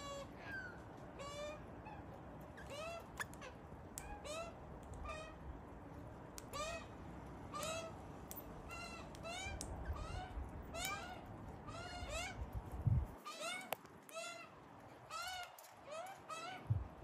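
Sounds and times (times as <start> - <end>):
low background rumble: 14.1 - 17.0.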